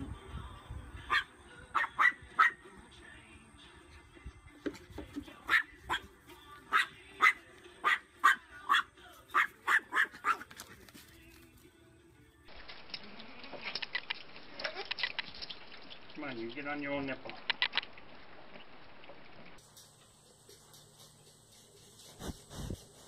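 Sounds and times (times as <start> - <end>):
dog barking: 1.1 - 2.6, 5.5 - 6.1, 6.7 - 10.5.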